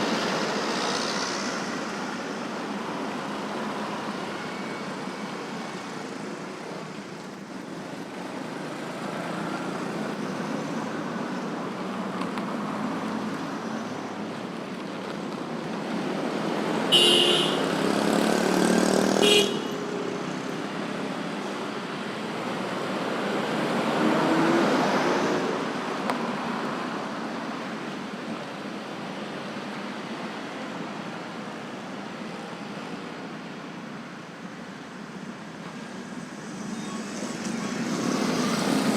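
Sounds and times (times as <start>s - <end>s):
motorbikes and cars passing: 0.0s - 38.9s
vehicle horn: 16.9s - 17.9s, 19.2s - 19.9s.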